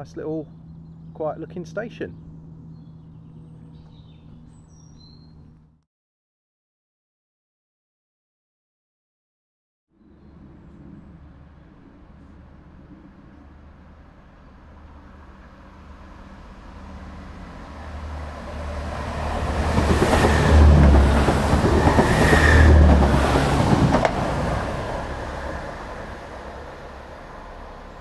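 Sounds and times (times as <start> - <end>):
diesel train passing: 0.0 - 4.8, 10.0 - 28.0.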